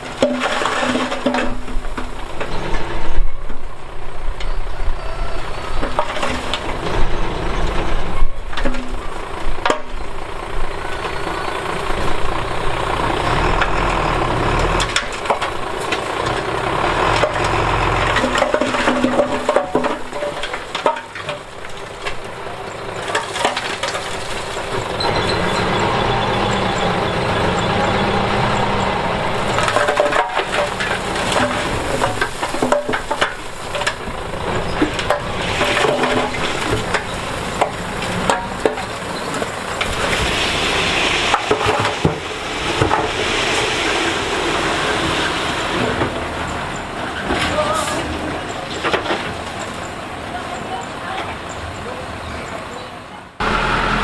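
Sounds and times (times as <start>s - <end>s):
diesel bulldozer engine working: 0.0s - 54.0s
metal and rock clanks: 17.1s - 22.4s, 29.4s - 40.2s.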